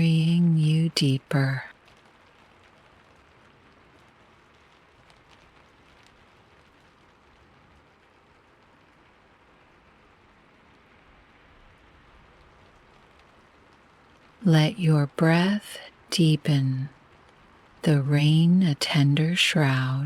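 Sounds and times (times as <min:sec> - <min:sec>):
faint rain hiss: 0:00.0 - 0:20.0.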